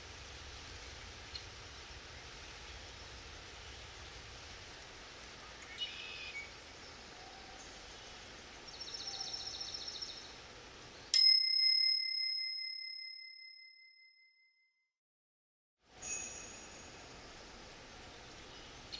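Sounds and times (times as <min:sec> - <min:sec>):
timer chime ringing: 0:16.0 - 0:17.2
bird trill: 0:16.0 - 0:17.3.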